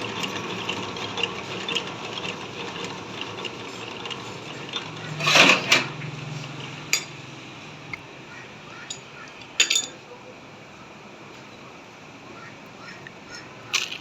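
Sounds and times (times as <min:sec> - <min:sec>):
metal lathe running: 0:00.0 - 0:07.9
harsh metal scrape: 0:00.1 - 0:07.0.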